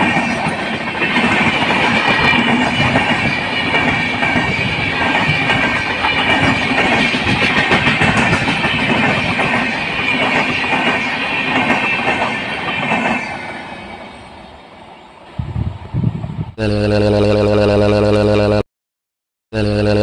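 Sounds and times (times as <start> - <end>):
train wheels clattering on track: 0.0 - 14.4.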